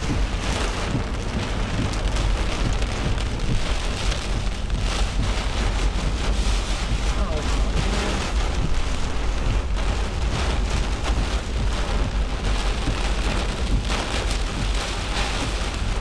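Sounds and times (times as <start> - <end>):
heavy rain pelting a vehicle: 0.0 - 16.0
storm wind buffeting vehicle: 0.0 - 16.0.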